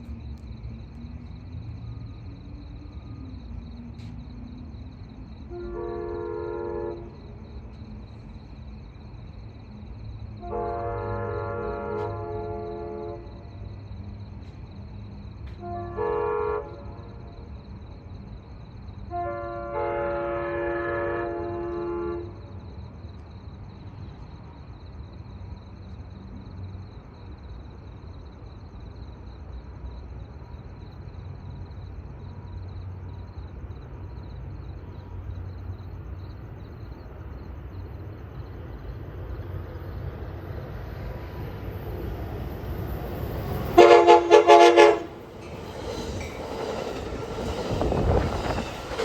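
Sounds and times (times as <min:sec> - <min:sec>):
train rumbling past: 0:00.0 - 0:49.0
train air horn blast: 0:05.5 - 0:07.2, 0:10.4 - 0:13.3, 0:15.6 - 0:17.0, 0:19.1 - 0:22.4, 0:43.8 - 0:45.3.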